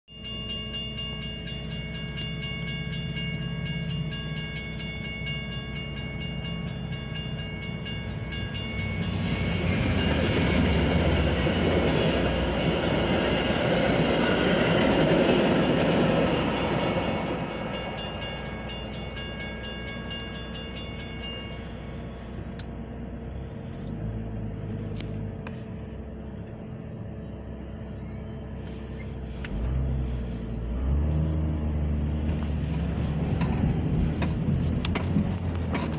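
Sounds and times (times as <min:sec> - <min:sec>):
railroad crossing bell ringing: 0:00.1 - 0:23.1, 0:32.8 - 0:35.9
train rumble and wheel noise: 0:00.1 - 0:35.9.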